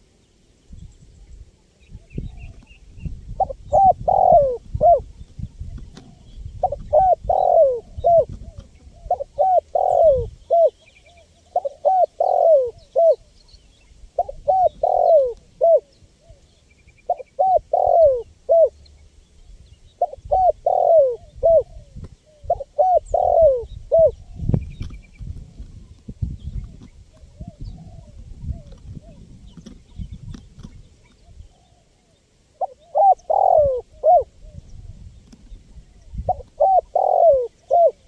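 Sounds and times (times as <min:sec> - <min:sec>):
dove cooing: 0:03.3 - 0:13.3, 0:14.2 - 0:18.8, 0:20.0 - 0:25.0, 0:26.6 - 0:30.4, 0:32.5 - 0:34.8, 0:35.8 - 0:38.0.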